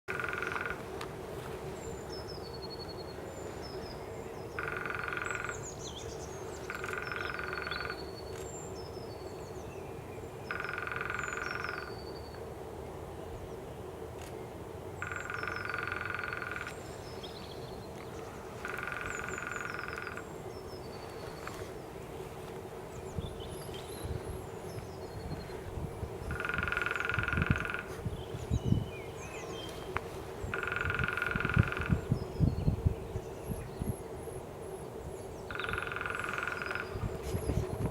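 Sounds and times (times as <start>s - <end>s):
woodpecker drumming on a branch: 0.1s - 0.9s, 4.5s - 5.8s, 6.7s - 8.1s, 10.5s - 12.0s, 15.0s - 16.8s, 18.6s - 20.3s, 26.2s - 28.8s, 30.5s - 32.4s, 35.5s - 37.4s
small birds singing: 1.8s - 12.4s, 13.2s - 21.7s, 22.9s - 37.9s.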